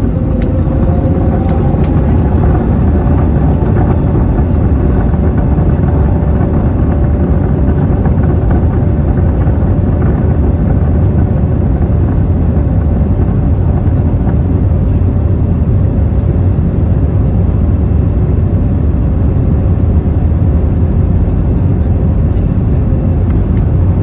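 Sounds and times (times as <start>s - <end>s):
jet engine rumble: 0.0s - 24.0s.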